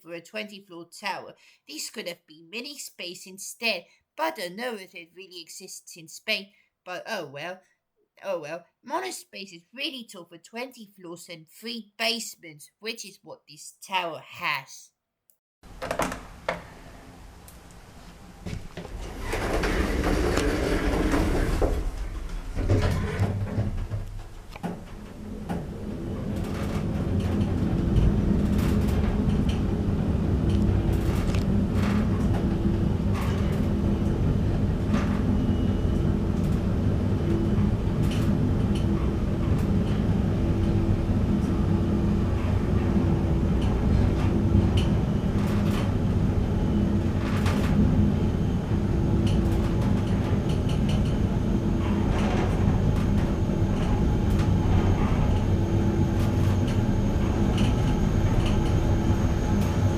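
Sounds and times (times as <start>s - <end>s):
lift travelling hum: 16.8s - 59.9s
lift doors moving: 18.5s - 29.8s.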